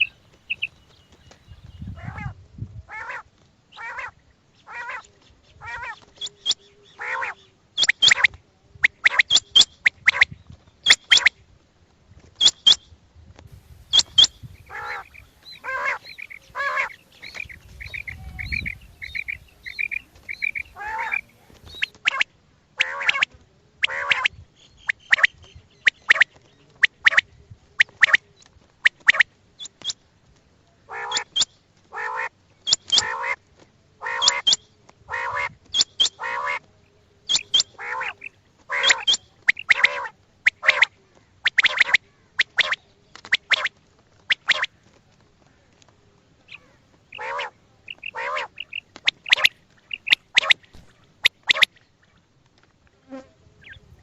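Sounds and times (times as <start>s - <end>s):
quail calls: 0.0s - 2.3s, 6.9s - 8.3s, 13.5s - 22.2s, 22.8s - 23.2s, 23.8s - 24.3s, 32.0s - 33.4s, 34.0s - 36.6s, 37.3s - 43.7s, 44.3s - 44.7s, 46.5s - 51.7s.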